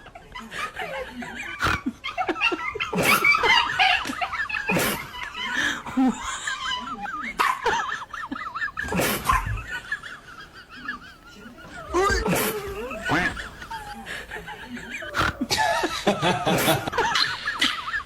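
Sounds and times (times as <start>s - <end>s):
people laughing and talking: 0.0s - 18.0s
high wavering voiced sounds: 11.1s - 14.2s.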